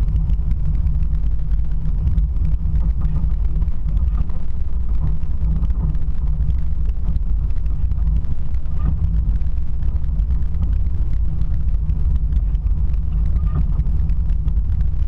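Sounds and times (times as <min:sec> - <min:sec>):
vehicle driving rumble: 0:00.0 - 0:15.0.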